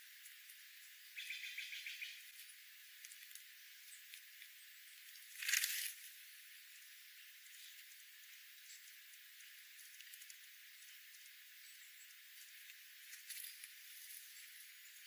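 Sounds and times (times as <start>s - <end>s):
small bird chattering trill: 1.2s - 2.2s.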